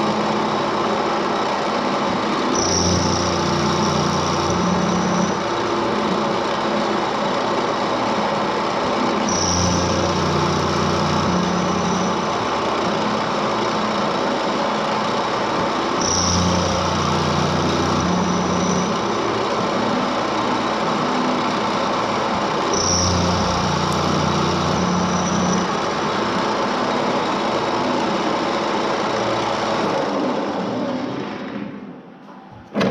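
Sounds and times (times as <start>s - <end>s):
milling machine cutting metal: 0.0s - 30.9s.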